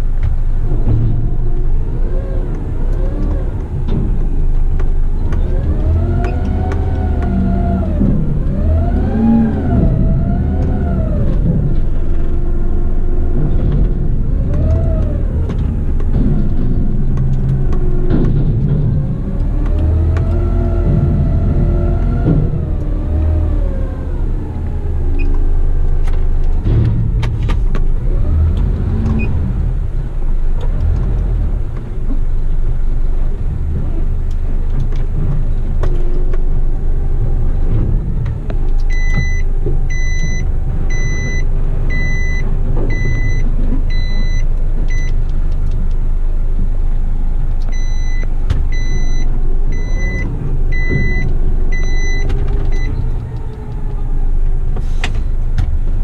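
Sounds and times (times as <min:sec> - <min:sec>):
truck engine rumbling: 0:00.0 - 0:56.0
reversing alarm beeping: 0:38.9 - 0:45.2, 0:47.7 - 0:52.9.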